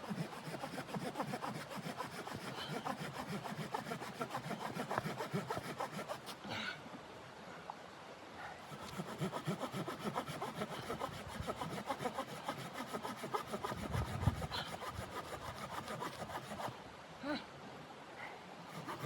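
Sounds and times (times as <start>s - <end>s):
saw cutting through wood: 0.0s - 6.4s, 8.7s - 16.8s, 18.7s - 19.0s.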